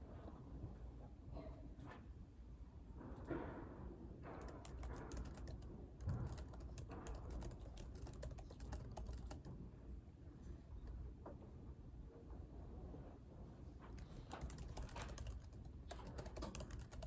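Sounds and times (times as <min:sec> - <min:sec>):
faint low room hum: 0:00.0 - 0:17.0
keyboard key clicks: 0:04.4 - 0:09.5, 0:14.0 - 0:17.0.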